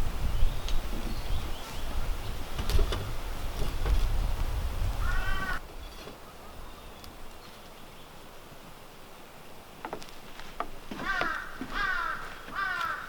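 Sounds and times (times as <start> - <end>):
wind rumble on microphone: 0.0 - 7.4.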